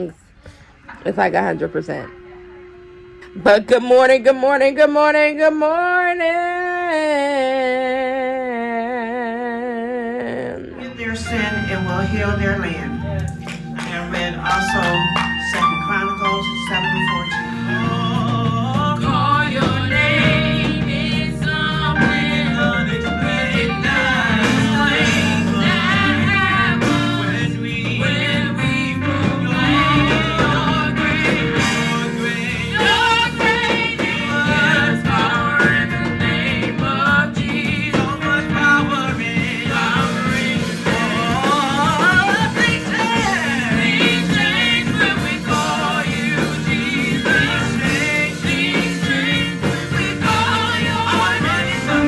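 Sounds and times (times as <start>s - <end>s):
voices singing worship song: 2.9s - 52.0s
band with steady beat: 13.2s - 52.0s.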